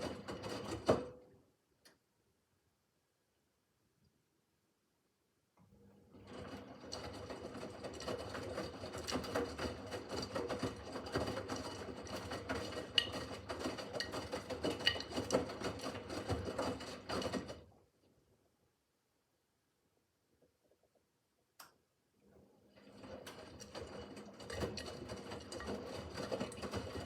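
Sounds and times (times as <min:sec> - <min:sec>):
washing machine motor hum: 0:05.7 - 0:18.1, 0:22.2 - 0:27.0.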